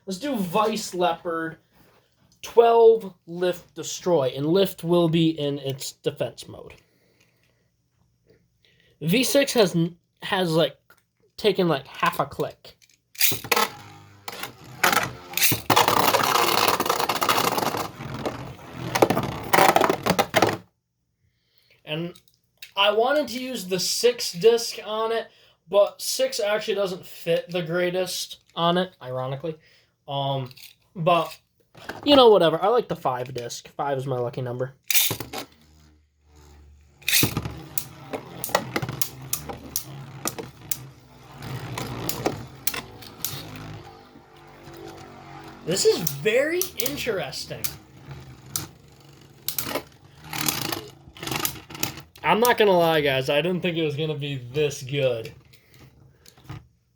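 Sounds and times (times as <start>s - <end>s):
spinning tops clashing and rattling: 15.1s - 17.8s
spinning tops humming: 34.9s - 53.0s.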